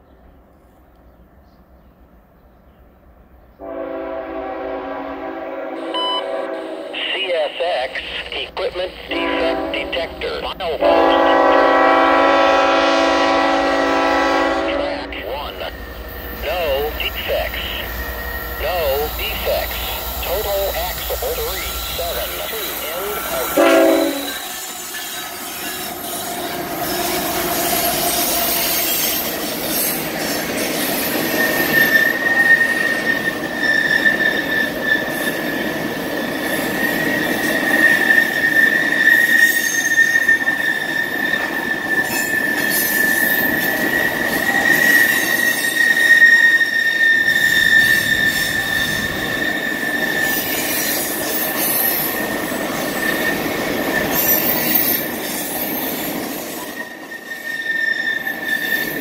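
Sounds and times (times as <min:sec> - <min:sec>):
freight train wheels rumbling: 0:08.0 - 0:59.0
high wheel squeal: 0:15.2 - 0:59.0.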